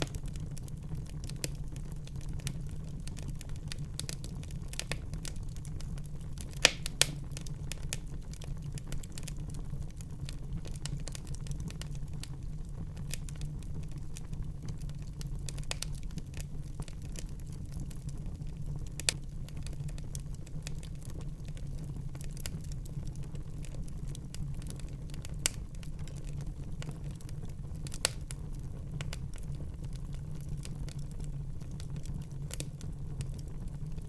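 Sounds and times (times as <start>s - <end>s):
sharp fire pops: 0.0s - 0.5s, 6.4s - 8.1s
fire crackling: 0.0s - 34.0s
low flame rumble: 0.0s - 34.0s.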